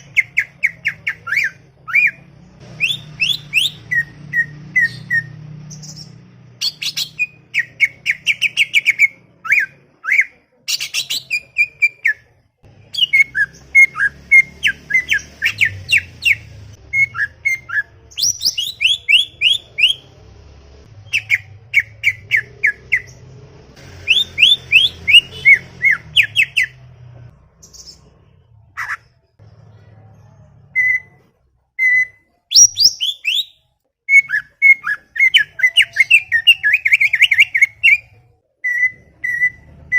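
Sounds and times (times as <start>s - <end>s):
bird singing chattering song: 0.0s - 20.0s, 31.8s - 39.9s.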